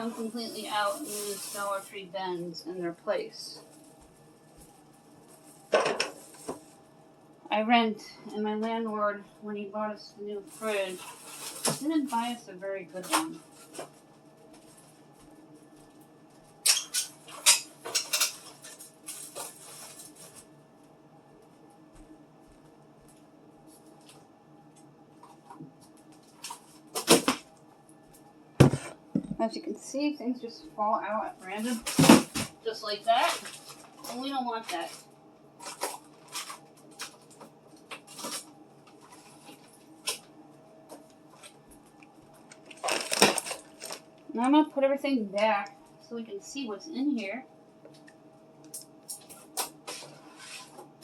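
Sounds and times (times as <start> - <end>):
containers clattering in refrigerator: 5.7 - 6.6, 28.6 - 29.4, 31.6 - 35.0, 42.5 - 44.1
food containers clicking and knocking: 42.5 - 44.0.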